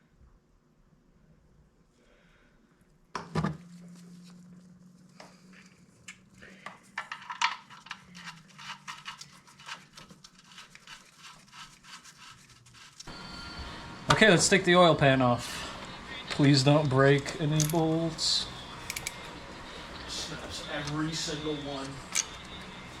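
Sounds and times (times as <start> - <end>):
faint steady hum: 13.1 - 23.0
metal hand tools clinking: 17.2 - 19.4, 20.2 - 22.8.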